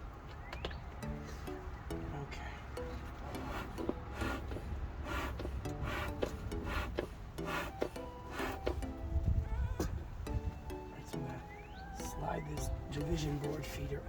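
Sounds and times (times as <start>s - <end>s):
faint background music: 0.0s - 14.0s
wooden hive parts scraping: 3.0s - 9.1s.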